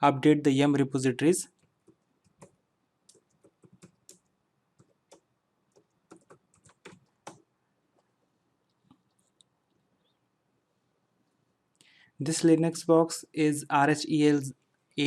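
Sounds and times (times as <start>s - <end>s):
computer keyboard typing: 1.6s - 7.5s.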